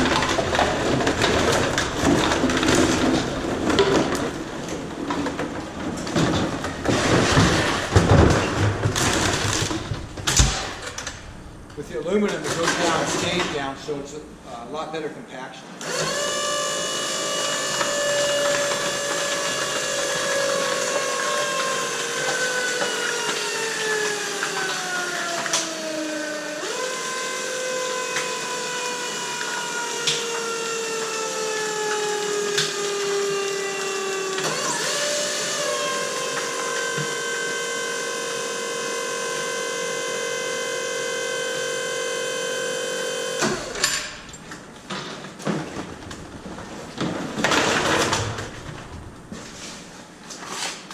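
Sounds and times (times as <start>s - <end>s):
sharp cracks: 0.0s - 14.4s
baler pump whining: 15.8s - 44.8s.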